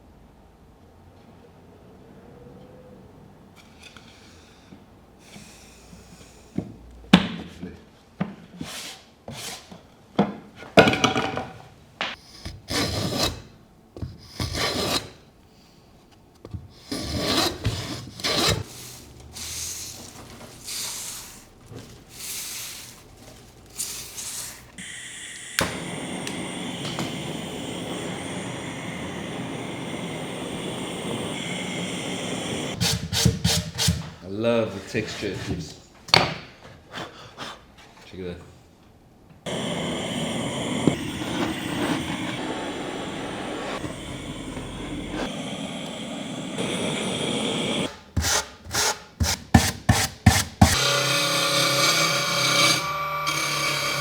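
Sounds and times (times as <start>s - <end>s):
scraping across wood: 16.4s - 24.8s
steady hiss with faint whine: 18.6s - 32.8s, 39.4s - 48.1s.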